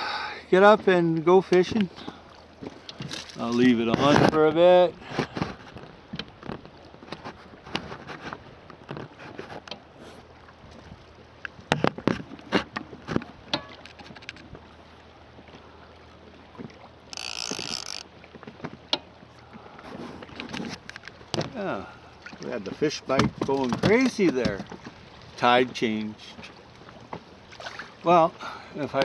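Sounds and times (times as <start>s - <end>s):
water lapping against boat hull: 0.0s - 29.0s
knocks on boat: 23.1s - 25.0s.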